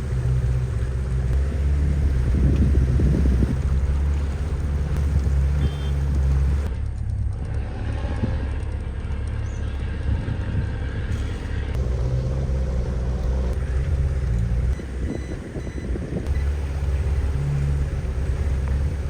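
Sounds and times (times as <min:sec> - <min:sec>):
outboard motor running: 0:00.0 - 0:06.7, 0:11.1 - 0:19.0.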